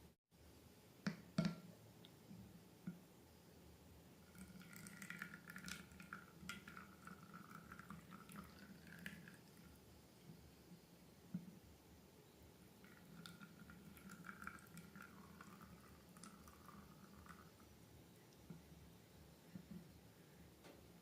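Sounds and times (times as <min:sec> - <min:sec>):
liquid pouring into a container: 0:04.2 - 0:09.7, 0:12.8 - 0:17.6.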